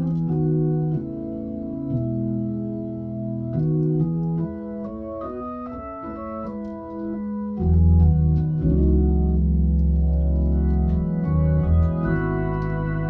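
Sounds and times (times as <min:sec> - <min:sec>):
organ playing gospel chords: 0:00.0 - 0:13.0
deep organ bass note: 0:07.6 - 0:13.0.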